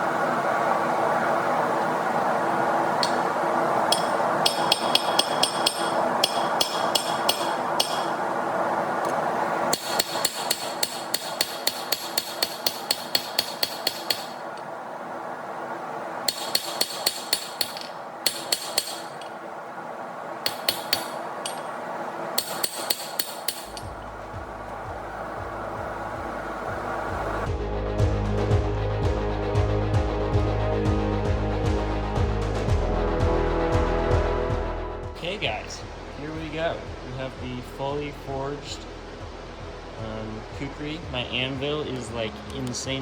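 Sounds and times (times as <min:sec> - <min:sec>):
steady rushing noise: 0:00.0 - 0:43.0
hammer ringing on anvil: 0:03.9 - 0:08.2, 0:09.7 - 0:14.4, 0:16.3 - 0:19.3, 0:20.5 - 0:21.8, 0:22.4 - 0:23.9.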